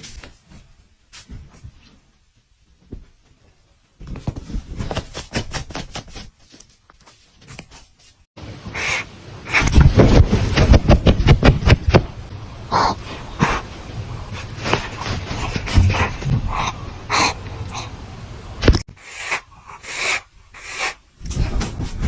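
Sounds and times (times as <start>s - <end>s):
loud rustling and crackling: 13.0s - 16.4s.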